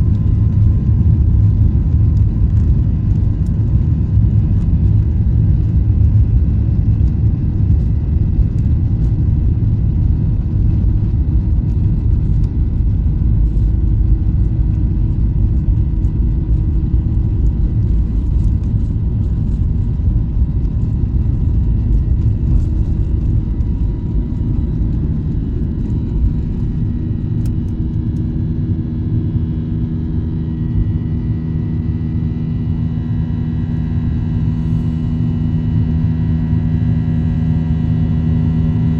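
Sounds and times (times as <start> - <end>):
airplane cabin engine rumble: 0.0 - 38.9
steady whining tones: 11.7 - 37.2.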